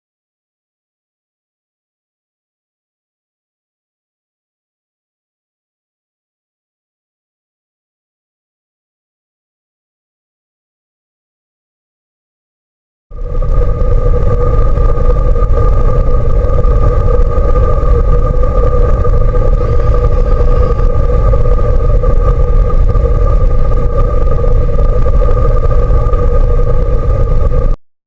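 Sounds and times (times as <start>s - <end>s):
loud low rumble: 13.1s - 27.8s
two-tone hum: 13.1s - 27.8s.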